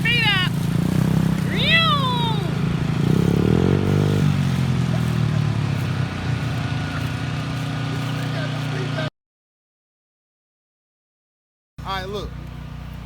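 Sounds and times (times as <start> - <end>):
dirt bike engine revving: 0.0 - 9.1.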